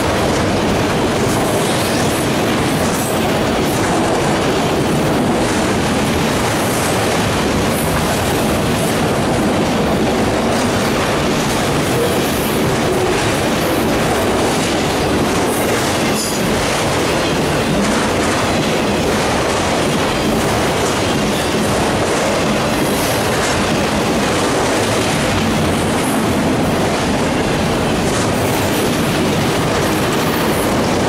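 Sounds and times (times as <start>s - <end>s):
train wheels clacking on rails: 0.0s - 31.0s.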